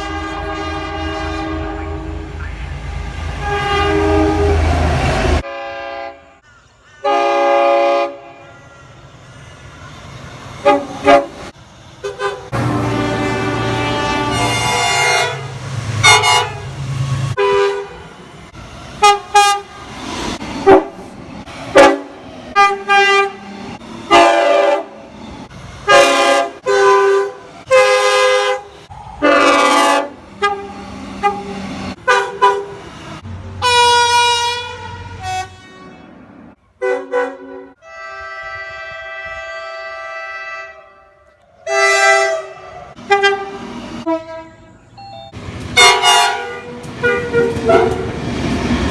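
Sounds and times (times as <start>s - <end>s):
train horn blasts: 0.0s - 6.4s, 7.0s - 8.6s, 10.6s - 16.8s, 17.4s - 18.0s, 19.0s - 19.8s, 21.7s - 23.5s, 24.1s - 25.0s, 25.8s - 32.8s, 33.6s - 44.8s, 45.8s - 48.2s.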